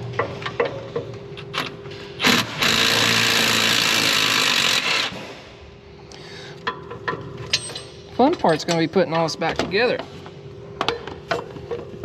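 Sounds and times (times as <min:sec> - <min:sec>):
power tool running: 0:02.2 - 0:05.4.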